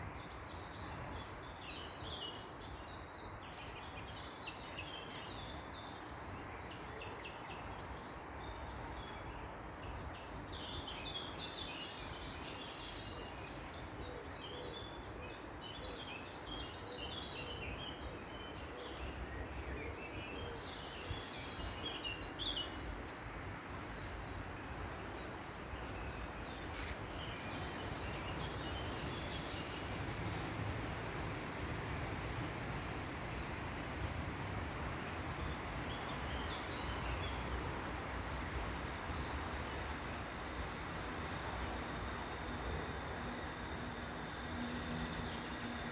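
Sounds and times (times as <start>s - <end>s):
small birds chirping: 7.2s - 45.9s
steady background hum: 22.8s - 45.9s.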